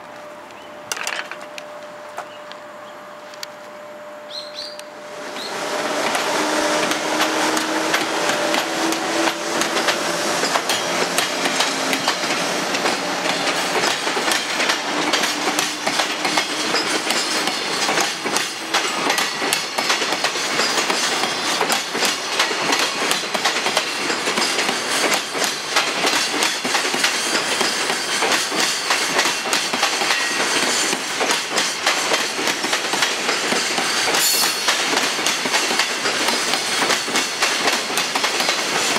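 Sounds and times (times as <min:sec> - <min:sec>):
freight train rumble: 0:00.0 - 0:38.9
train wheels clacking on rails: 0:05.4 - 0:38.9.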